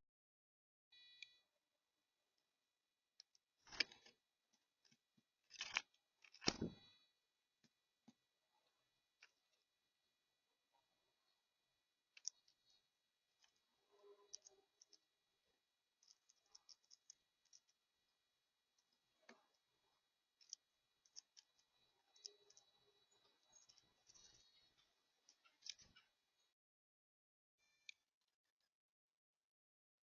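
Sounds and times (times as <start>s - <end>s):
quiet high tones: 8.5s - 26.4s.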